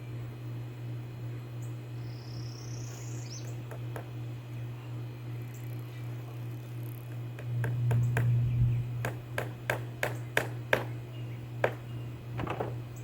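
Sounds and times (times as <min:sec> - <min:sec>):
steady low hum: 0:00.0 - 0:13.0
hammer tapping nails: 0:09.0 - 0:11.0, 0:11.6 - 0:11.8.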